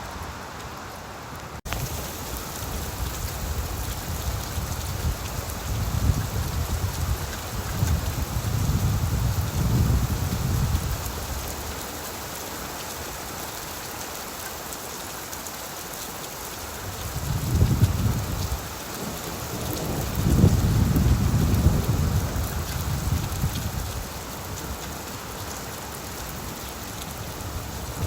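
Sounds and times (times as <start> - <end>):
rain falling on leaves: 0.0 - 28.0
thunder rumbling: 17.2 - 24.2.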